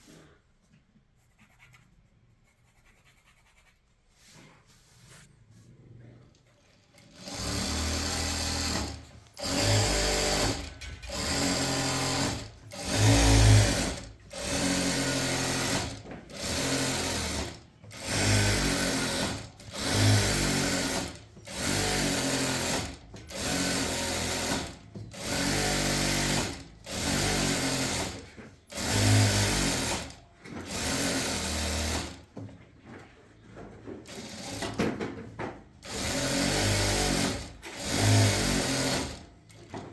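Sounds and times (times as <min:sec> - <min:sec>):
electric sewing machine stitching: 0:06.8 - 0:32.3, 0:34.0 - 0:34.9, 0:35.8 - 0:39.3.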